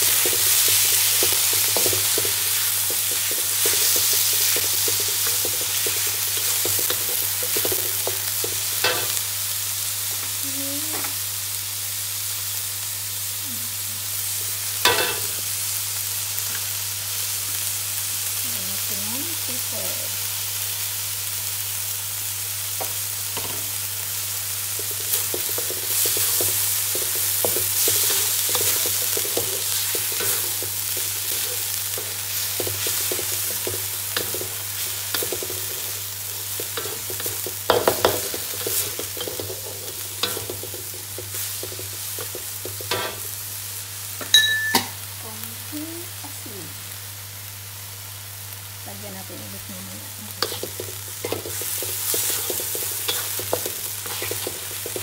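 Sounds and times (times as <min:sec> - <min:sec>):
meat sizzling in a wok: 0:00.0 - 0:55.0
wooden spatula scraping a pan: 0:50.4 - 0:55.0.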